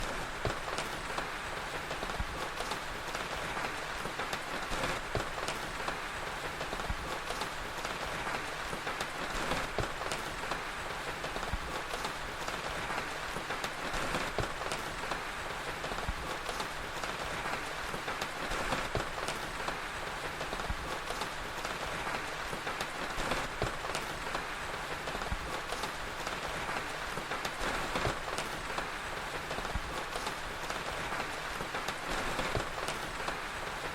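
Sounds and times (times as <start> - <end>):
steady rain: 0.0 - 33.9
wood fire crackling: 0.0 - 33.9.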